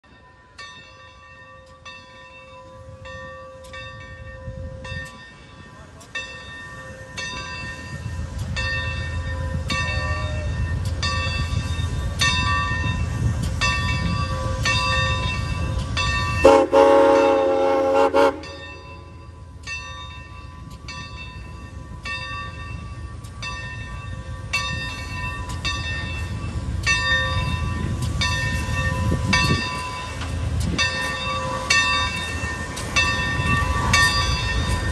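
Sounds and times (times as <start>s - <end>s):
steam locomotive bell ringing: 0.0s - 34.9s
train rumbling: 0.0s - 34.9s
locomotive whistle blast: 16.4s - 18.6s.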